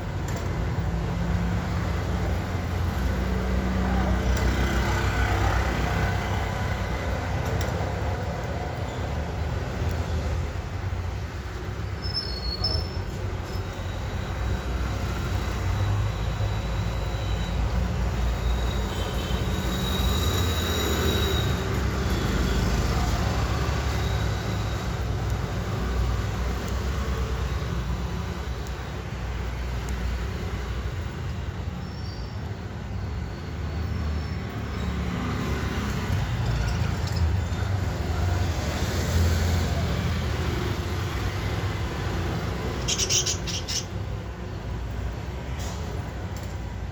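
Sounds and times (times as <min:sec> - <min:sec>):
budgies chirping: 0:42.8 - 0:43.9.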